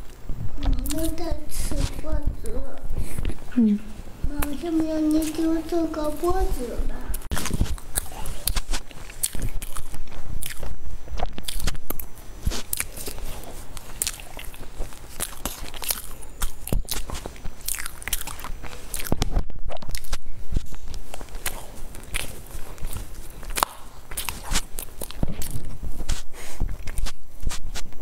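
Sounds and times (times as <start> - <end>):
crunchy chewing and biting: 7.1 - 28.0.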